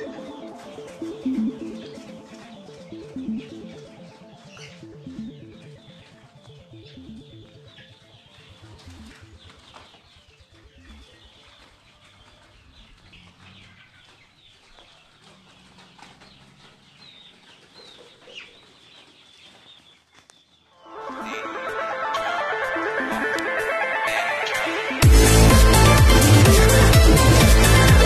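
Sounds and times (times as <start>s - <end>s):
birds chirping: 0.0s - 28.0s
loud guitar music: 20.8s - 28.0s.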